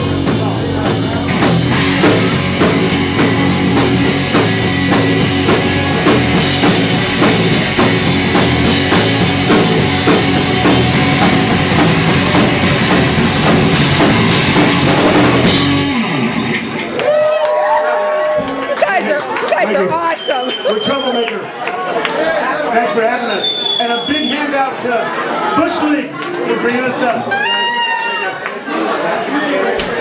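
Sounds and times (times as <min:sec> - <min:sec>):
drum kit hits: 0:00.0 - 0:16.7
electric guitar: 0:00.0 - 0:17.6.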